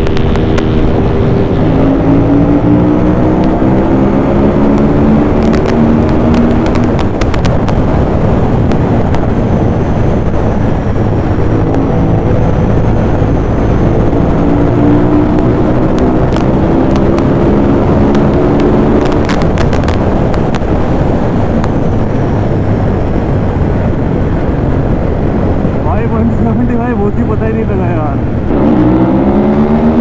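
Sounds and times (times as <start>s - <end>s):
motorcycle engine pulling hard: 0.0s - 23.1s
wind and road noise: 0.0s - 30.0s.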